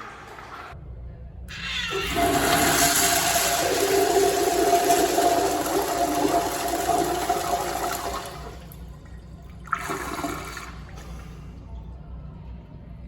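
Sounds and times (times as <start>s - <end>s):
toilet flushing: 1.5s - 11.5s.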